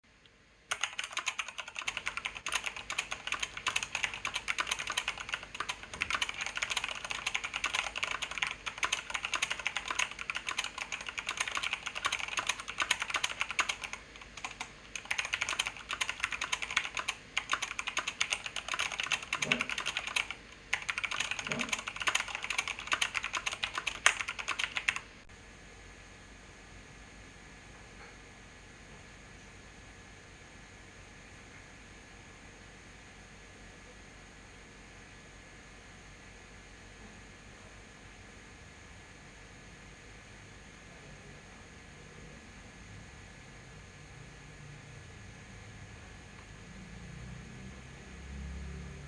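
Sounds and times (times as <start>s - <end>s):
fast typing on keyboard: 0.7s - 25.0s.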